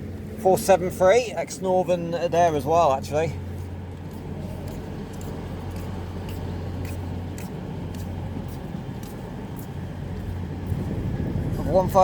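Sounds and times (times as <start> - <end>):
diesel train low drone: 0.0 - 12.0
faint irregular clicks: 3.9 - 10.3.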